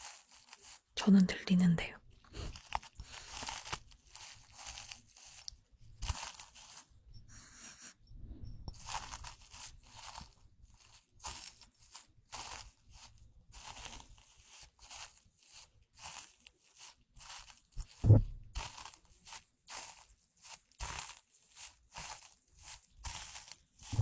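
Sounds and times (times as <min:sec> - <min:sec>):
soft crunching and crinkling: 0:00.0 - 0:24.0
low thump: 0:18.0 - 0:18.5.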